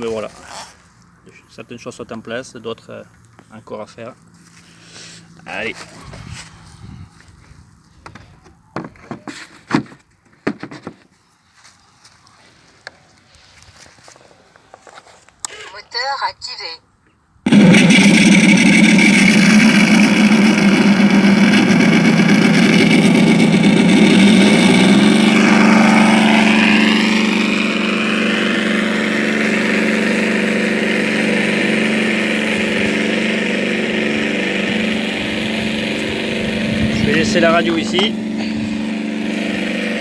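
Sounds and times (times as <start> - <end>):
simulated radial engine from speaker: 17.5 - 40.0.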